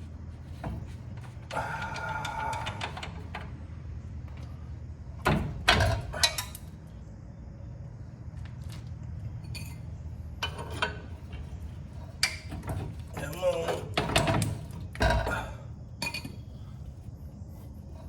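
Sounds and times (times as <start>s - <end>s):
metal tools clinking: 9.4s - 11.1s.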